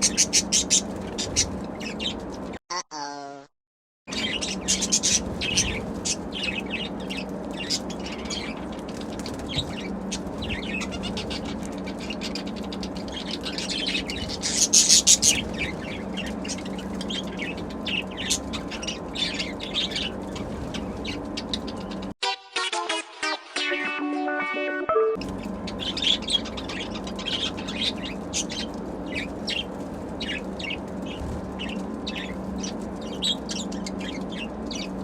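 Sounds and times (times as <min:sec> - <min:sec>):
budgerigars chirping and warbling: 0:00.0 - 0:02.3, 0:04.1 - 0:22.1, 0:25.2 - 0:35.0
low hum: 0:04.1 - 0:22.2.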